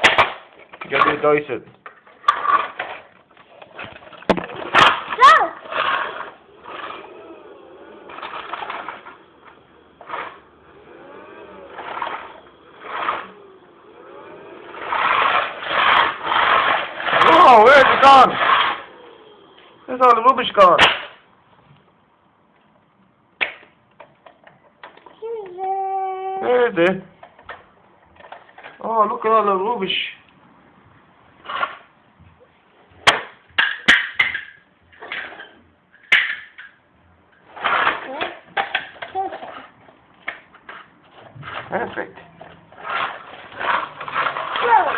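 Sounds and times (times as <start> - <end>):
toy vacuum cleaner whirring: 2.3 - 20.7, 37.4 - 44.9.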